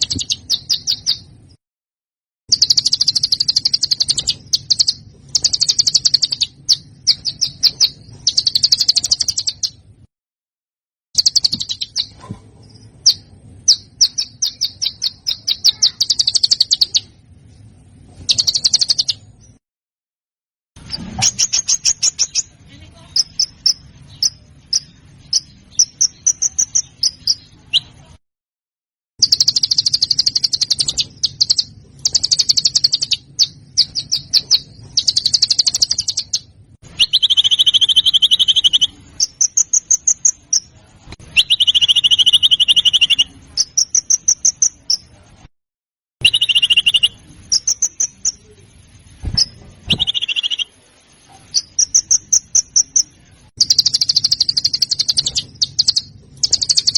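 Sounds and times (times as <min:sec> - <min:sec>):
songbird trills and chips: 0:00.0 - 0:01.2, 0:02.5 - 0:09.8, 0:11.2 - 0:17.1, 0:29.2 - 0:45.1, 0:46.2 - 0:48.6, 0:49.4 - 0:50.8, 0:51.4 - 0:56.9.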